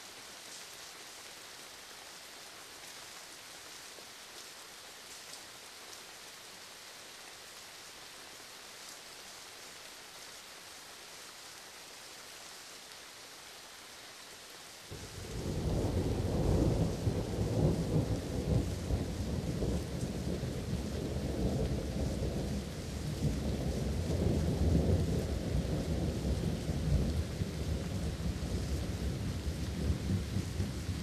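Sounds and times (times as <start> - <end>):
steady rain: 0.0 - 31.0
rolling thunder rumble: 14.9 - 31.0.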